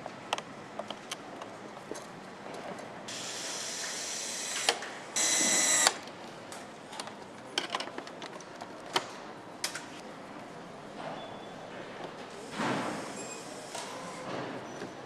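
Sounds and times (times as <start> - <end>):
power tool high-pitched whine: 3.1 - 6.0
power tool whirring: 3.1 - 6.0.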